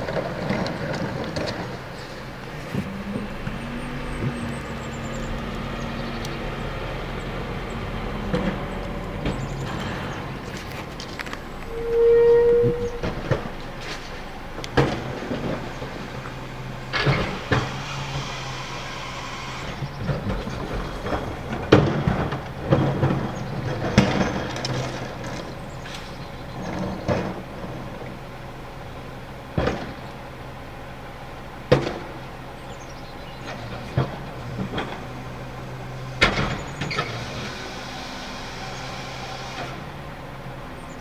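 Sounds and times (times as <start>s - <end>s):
trash cans banging and clattering: 0.0s - 11.6s, 19.9s - 27.8s
garbage truck hydraulic hum: 0.0s - 41.0s.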